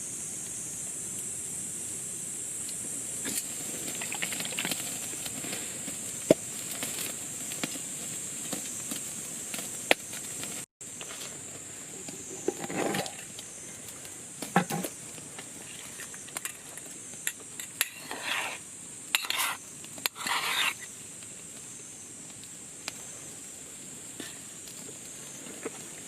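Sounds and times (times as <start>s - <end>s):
steady hiss: 0.0s - 26.0s
campfire crackling and popping: 2.6s - 11.8s, 12.6s - 26.0s
camp gear clattering: 12.0s - 13.4s.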